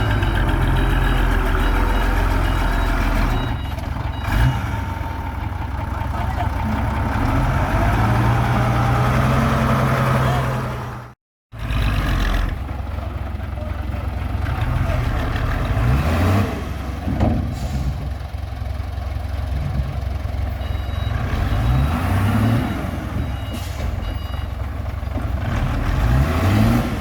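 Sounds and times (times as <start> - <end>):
truck engine revving: 0.0 - 13.0, 13.6 - 18.3, 21.0 - 23.9, 25.1 - 27.0
high reversing beeps: 20.5 - 24.6.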